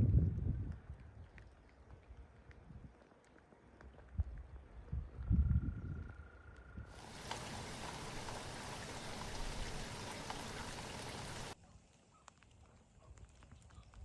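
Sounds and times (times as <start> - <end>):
drops ticking: 6.9 - 11.6
steady rain hissing: 6.9 - 12.1.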